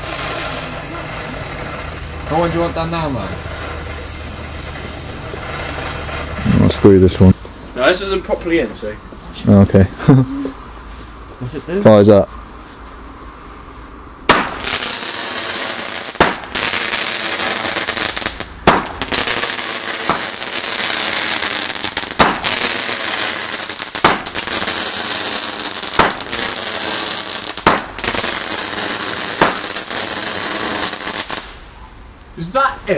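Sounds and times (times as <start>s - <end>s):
firework bangs: 0.0s - 7.4s, 14.2s - 31.8s
firework hissing: 0.0s - 7.4s, 14.2s - 31.8s.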